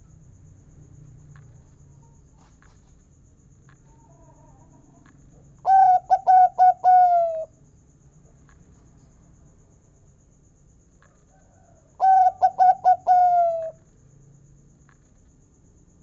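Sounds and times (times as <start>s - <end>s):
dove cooing: 5.6s - 7.5s, 12.0s - 13.8s.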